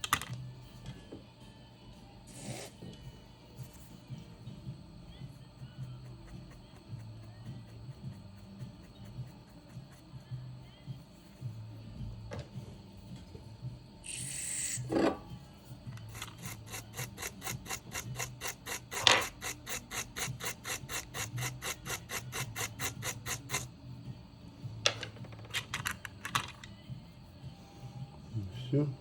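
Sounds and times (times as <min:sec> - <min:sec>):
hand tool scraping circuit board: 0:16.1 - 0:23.7.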